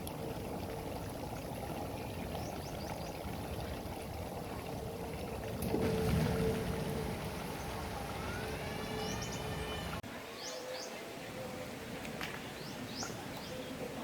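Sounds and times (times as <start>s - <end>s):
steady background noise: 3.6s - 14.0s.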